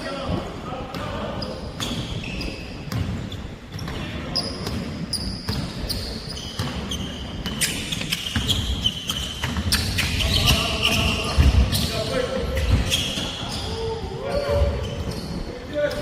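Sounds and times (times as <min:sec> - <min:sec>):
basketball bouncing on court floor: 0:00.9 - 0:11.9
sneaker squeaks on floor: 0:01.0 - 0:16.0.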